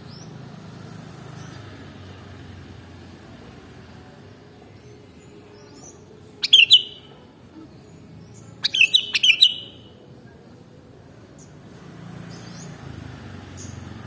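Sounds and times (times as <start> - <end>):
bulbul singing: 4.8 - 7.3, 8.2 - 10.1.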